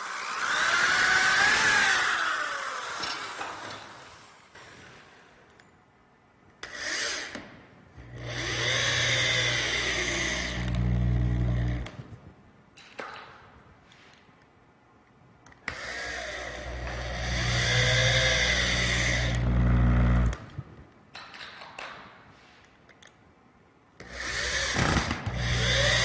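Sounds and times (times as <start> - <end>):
power drill driving screws: 0.0 - 5.1, 8.1 - 11.9, 15.6 - 20.4, 24.0 - 26.0.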